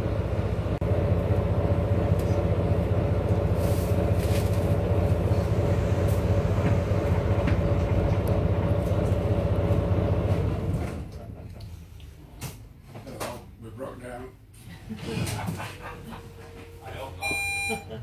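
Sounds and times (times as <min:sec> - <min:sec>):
train rumbling past: 0:00.0 - 0:11.8.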